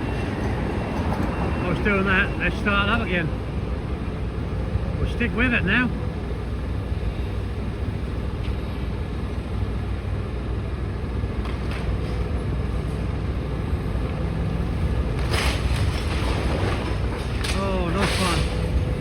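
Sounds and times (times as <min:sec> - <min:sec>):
excavator diesel engine running: 0:00.0 - 0:19.0
crash of breaking material: 0:15.2 - 0:18.7.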